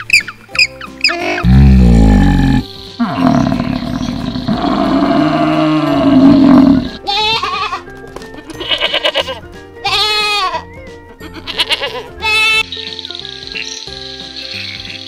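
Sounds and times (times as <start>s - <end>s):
background music: 0.0s - 15.0s
water buffalo bellowing: 1.1s - 7.0s
goats bleating: 4.4s - 10.6s, 11.2s - 12.6s.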